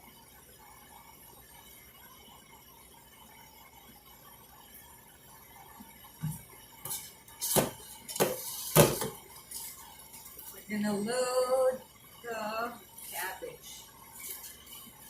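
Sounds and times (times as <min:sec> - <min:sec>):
pots and utensils clanking: 0:06.2 - 0:10.6.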